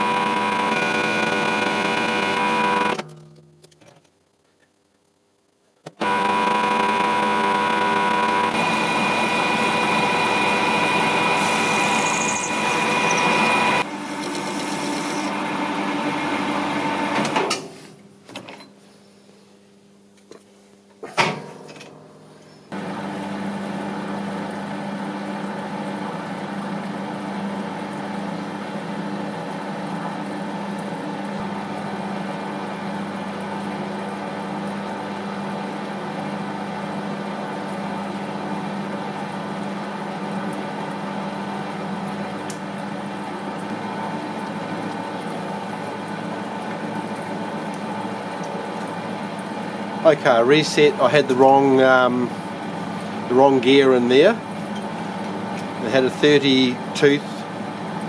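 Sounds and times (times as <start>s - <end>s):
metal lathe running: 0.0s - 3.0s, 6.0s - 16.0s.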